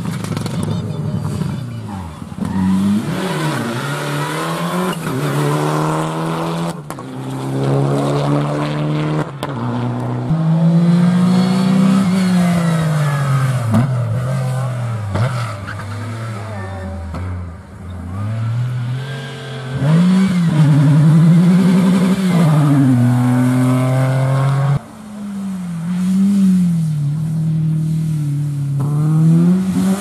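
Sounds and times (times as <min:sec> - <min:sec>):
rally car engine accelerating: 0:02.4 - 0:24.9.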